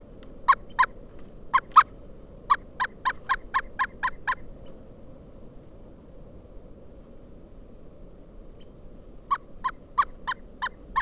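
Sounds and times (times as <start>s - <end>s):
woodpecker calling: 0.5s - 1.9s, 2.5s - 4.5s, 9.3s - 11.0s.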